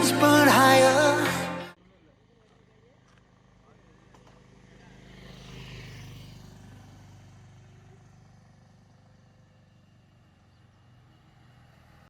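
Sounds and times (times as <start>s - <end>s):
faint vehicle engine hum: 1.8s - 12.0s.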